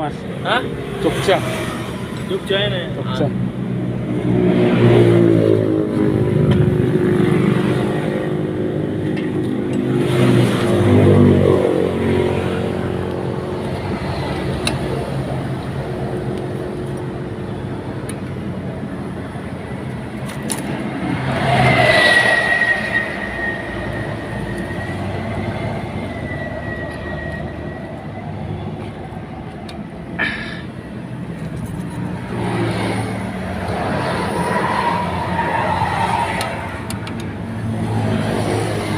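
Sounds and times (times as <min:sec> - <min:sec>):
vehicle engines running: 0:00.0 - 0:38.9
thin high whistle: 0:22.0 - 0:28.3.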